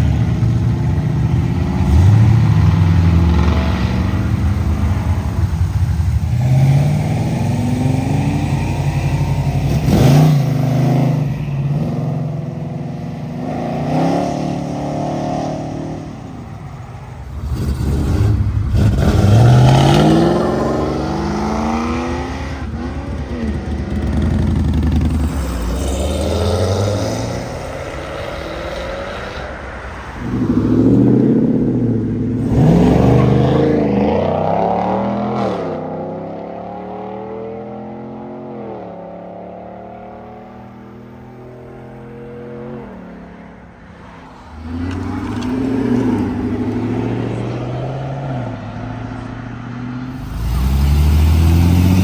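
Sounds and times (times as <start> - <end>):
car engines accelerating: 0.0 - 52.0.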